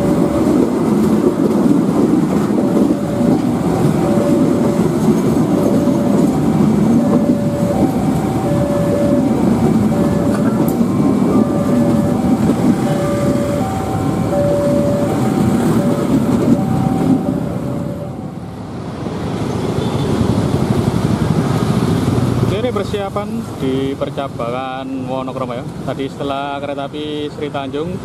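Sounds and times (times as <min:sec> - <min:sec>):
road traffic with motorbikes: 0:00.0 - 0:28.0
train carriages rumbling past: 0:00.0 - 0:28.0
level crossing alarm two-note signal: 0:02.5 - 0:18.6.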